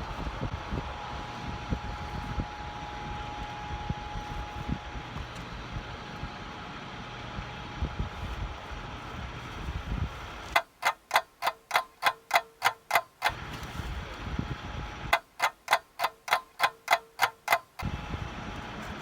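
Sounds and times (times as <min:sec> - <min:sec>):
sharp even ticking: 0:10.5 - 0:13.4, 0:15.1 - 0:17.9.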